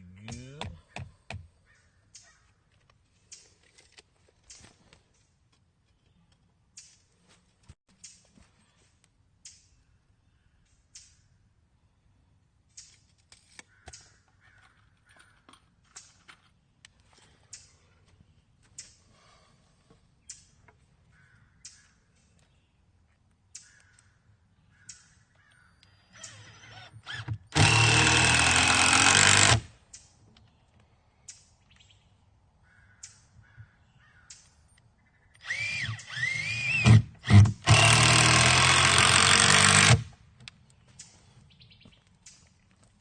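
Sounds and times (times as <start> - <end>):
handheld power tool running: 26.2 - 29.7, 35.4 - 40.1.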